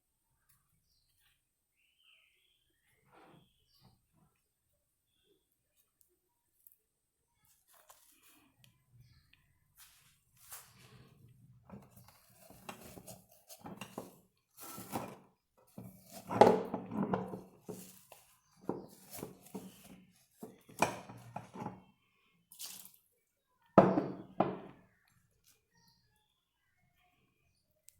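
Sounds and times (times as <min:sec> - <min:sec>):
wet handling sounds: 0:22.5 - 0:23.1.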